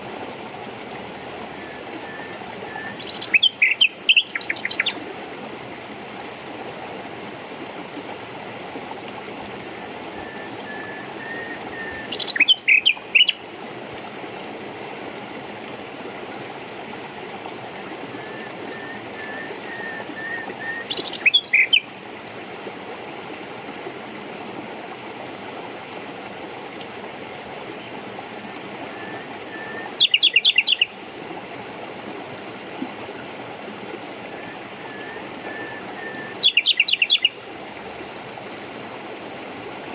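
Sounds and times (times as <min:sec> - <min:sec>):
running water: 0:00.0 - 0:39.9
songbird chirping: 0:02.0 - 0:05.0, 0:11.2 - 0:13.4, 0:18.7 - 0:22.0, 0:29.6 - 0:31.1, 0:34.8 - 0:37.5
soft whistled bird notes: 0:18.1 - 0:21.9, 0:28.9 - 0:31.0, 0:34.3 - 0:37.4.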